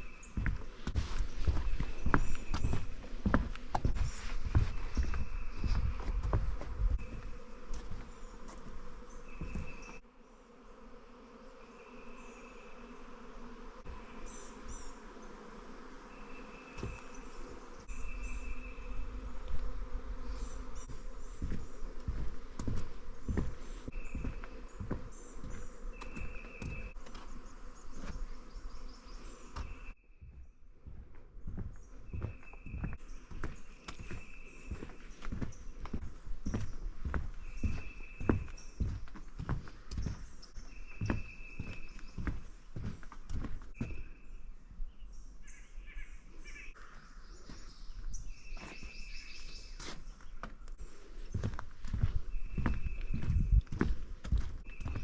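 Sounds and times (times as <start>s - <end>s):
bird chirping: 0.0s - 3.0s, 7.0s - 10.0s, 16.0s - 19.2s, 23.2s - 30.6s, 31.5s - 50.6s, 51.3s - 55.0s
footsteps on a trail: 0.0s - 10.0s, 16.6s - 44.2s, 46.7s - 55.0s.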